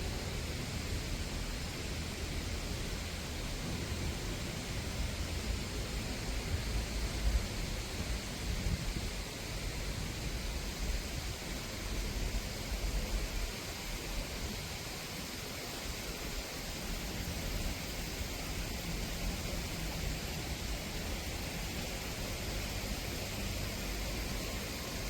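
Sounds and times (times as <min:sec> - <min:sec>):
steady outdoor hiss: 0:00.0 - 0:25.0
wind buffeting microphone: 0:06.6 - 0:11.4.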